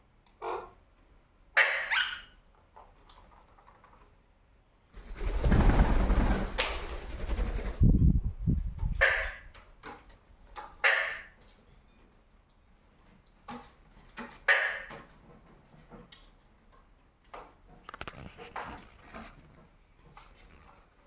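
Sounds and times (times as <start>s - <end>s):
parakeet squawking: 1.6s - 2.3s, 9.0s - 9.4s.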